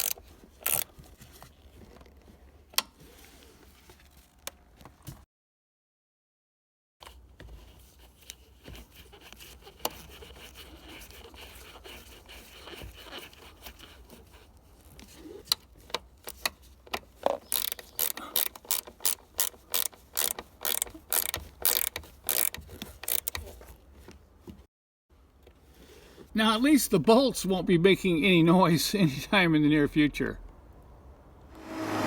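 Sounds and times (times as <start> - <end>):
ratchet wrench clicking: 0.0 - 0.9, 17.5 - 23.4.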